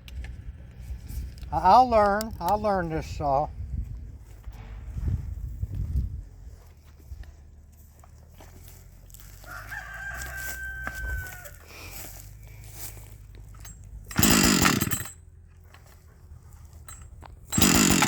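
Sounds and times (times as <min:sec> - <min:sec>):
rooster crowing: 0:09.2 - 0:11.7
chainsaw pull-start: 0:13.6 - 0:15.2, 0:16.8 - 0:18.0.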